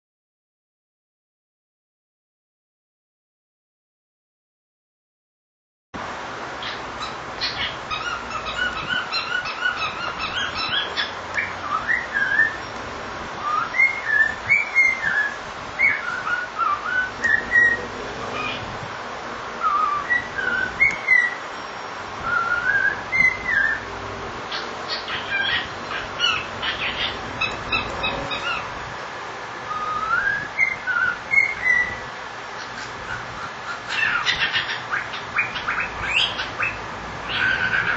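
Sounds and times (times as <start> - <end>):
cockatiel chirps: 6.6 - 12.7, 24.5 - 28.7, 30.6 - 32.0, 32.6 - 37.9
cockatiel whistling: 6.6 - 12.7, 13.4 - 18.6, 19.6 - 21.4, 22.2 - 23.8, 24.5 - 28.7, 29.7 - 32.0, 32.6 - 37.9.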